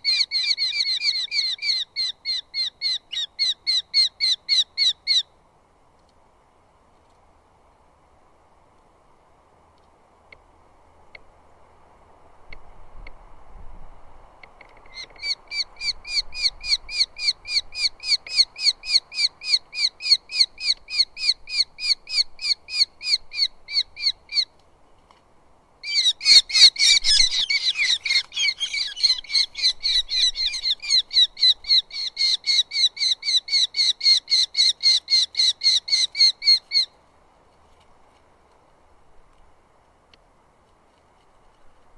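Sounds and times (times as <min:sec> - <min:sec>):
bird calling sharp repeated notes: 0:00.0 - 0:05.3, 0:25.8 - 0:36.9.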